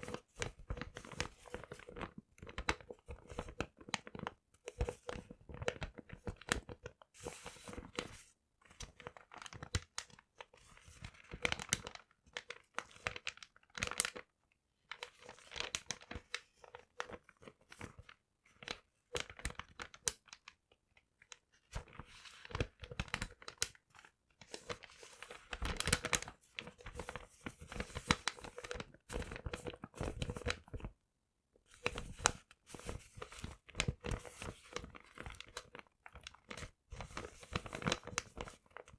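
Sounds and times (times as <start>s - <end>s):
paper crumpling and tearing: 24.8s - 30.6s.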